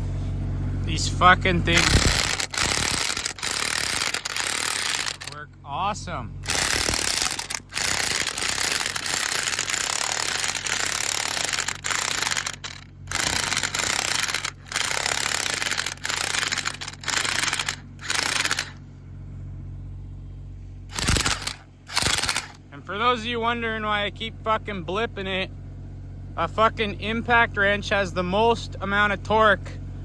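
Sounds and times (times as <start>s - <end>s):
impact wrench hammering bursts: 1.7s - 5.4s, 6.4s - 18.8s, 20.9s - 22.7s.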